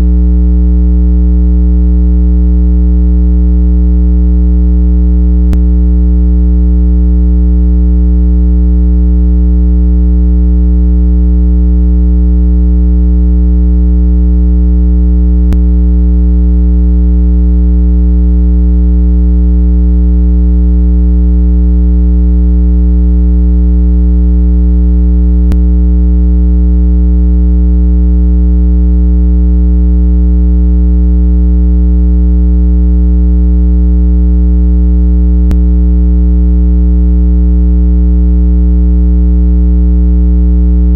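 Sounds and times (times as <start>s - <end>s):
low buzzy electronic tone: 0.0s - 0.8s, 5.2s - 7.4s, 15.4s - 18.0s, 25.4s - 25.8s, 35.4s - 35.7s.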